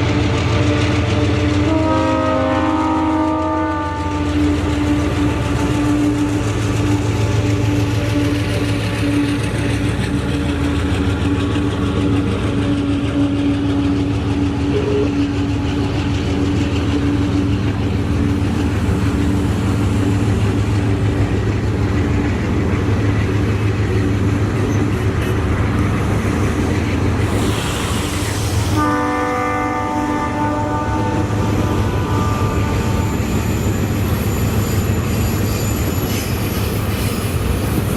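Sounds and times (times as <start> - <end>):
locomotive engine drone: 0.0 - 37.9
multi-tone air horn: 1.7 - 4.4, 28.7 - 31.4.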